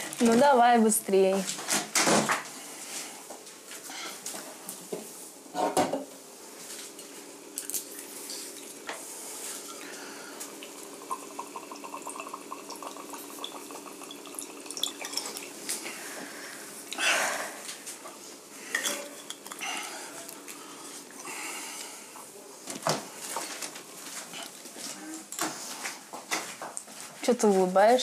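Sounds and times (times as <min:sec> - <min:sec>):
dishes and cutlery clinking: 0:18.7 - 0:19.6.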